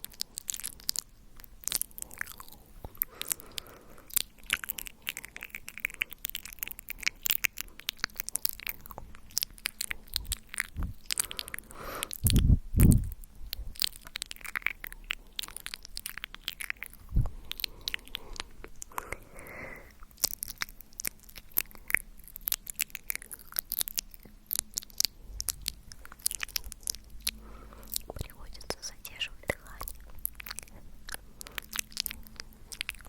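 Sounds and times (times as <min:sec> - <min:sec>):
wet mouth clicks and smacks: 0:00.0 - 0:33.0
low thumps: 0:10.7 - 0:11.0.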